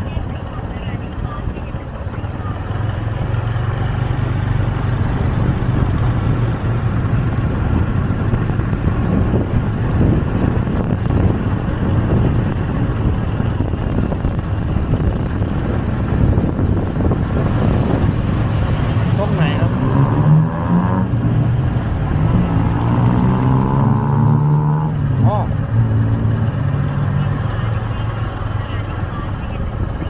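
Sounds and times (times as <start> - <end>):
motorcycle engine running: 0.0 - 20.0
road and wind noise: 0.0 - 30.0.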